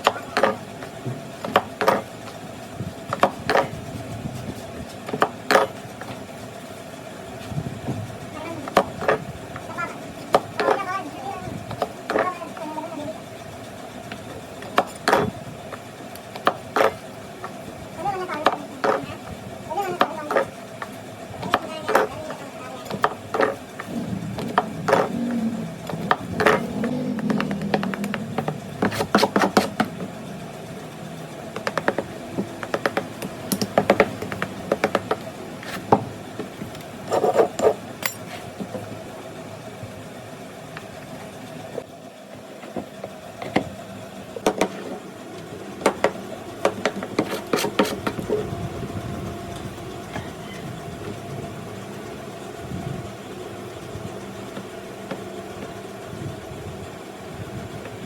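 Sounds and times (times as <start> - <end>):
hand tools clicking and knocking: 0.0 - 2.1, 3.1 - 3.8, 8.6 - 10.9, 11.7 - 12.7, 18.4 - 19.2, 19.9 - 30.1, 31.5 - 38.9, 45.8 - 48.5
steady hum: 0.0 - 58.0.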